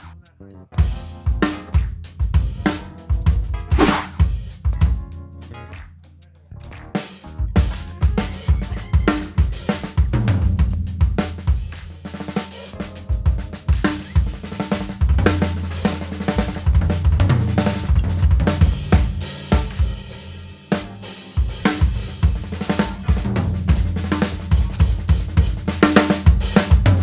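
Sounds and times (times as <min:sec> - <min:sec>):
low ringing drums: 0:00.8 - 0:05.2, 0:07.4 - 0:27.0
bass drum: 0:00.8 - 0:05.9, 0:06.6 - 0:27.0
snare drum: 0:00.9 - 0:05.0, 0:07.0 - 0:20.1, 0:20.7 - 0:27.0
cymbals: 0:13.7 - 0:27.0.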